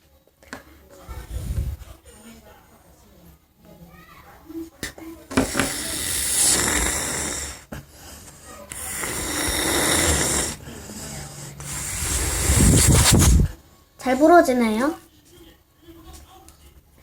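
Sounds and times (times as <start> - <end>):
person blowing into balloon: 5.4 - 7.6, 8.7 - 10.6, 11.6 - 13.6.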